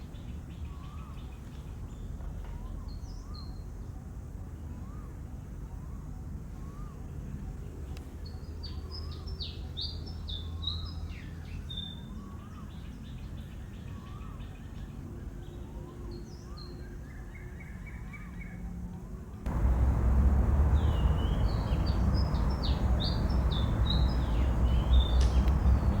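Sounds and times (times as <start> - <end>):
birds chirping: 19.5 - 26.0
loud low rumbling: 19.5 - 26.0
steady low hum: 19.5 - 26.0.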